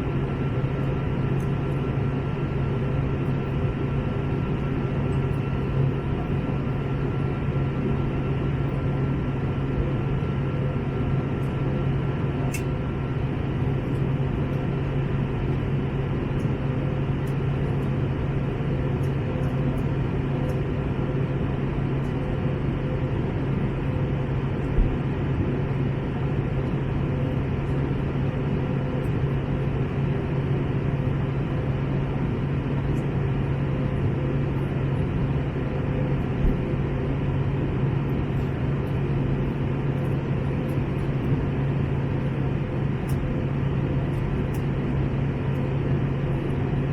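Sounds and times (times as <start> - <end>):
airplane cabin engine drone: 0.0 - 46.9.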